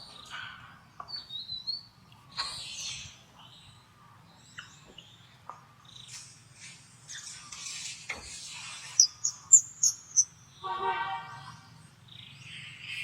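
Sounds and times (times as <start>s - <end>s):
macaques calling: 9.0s - 10.2s.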